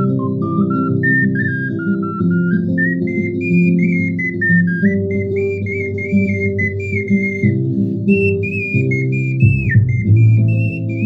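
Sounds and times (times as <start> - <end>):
ocarina melody: 0.0 - 11.0
backing accompaniment: 8.1 - 11.0.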